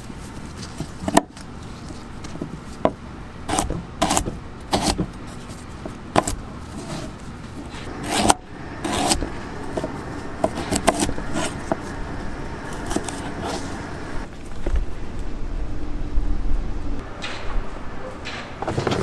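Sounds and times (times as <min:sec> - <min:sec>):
scraping: 0:00.0 - 0:15.2, 0:17.0 - 0:19.0
sharp knocks: 0:17.0 - 0:19.0.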